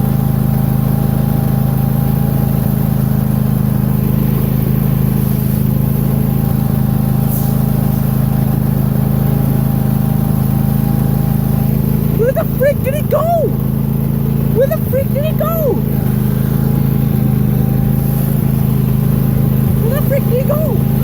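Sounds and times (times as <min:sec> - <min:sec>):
lawn tractor engine running: 0:00.0 - 0:21.0.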